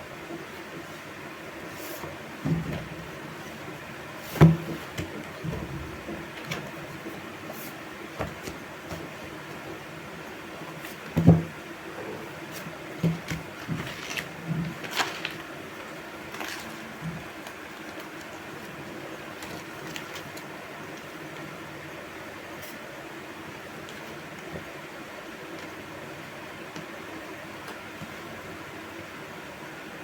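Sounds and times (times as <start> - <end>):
notebooks and packaging rustling: 1.0 - 9.9, 10.6 - 21.6.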